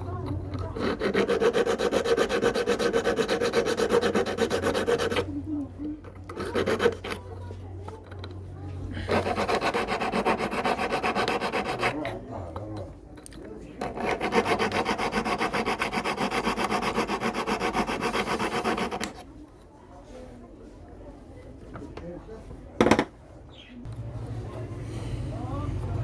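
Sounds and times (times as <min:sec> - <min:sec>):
file rasping on metal ring: 0:00.0 - 0:05.3, 0:06.2 - 0:07.2, 0:09.0 - 0:12.2, 0:13.8 - 0:19.2.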